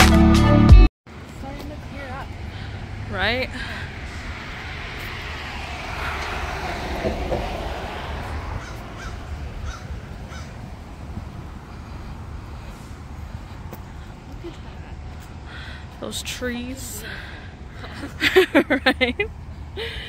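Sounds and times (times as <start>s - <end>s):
low outdoor rumble: 1.1s - 20.0s
bird calls: 8.6s - 10.7s.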